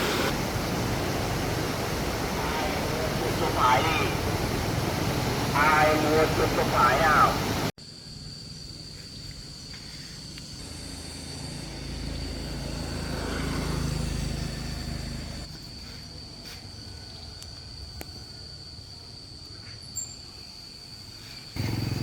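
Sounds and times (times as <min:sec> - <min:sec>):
vehicle engine passing: 0:00.0 - 0:07.7, 0:10.7 - 0:15.5, 0:21.6 - 0:22.0
high insect drone: 0:00.0 - 0:22.0.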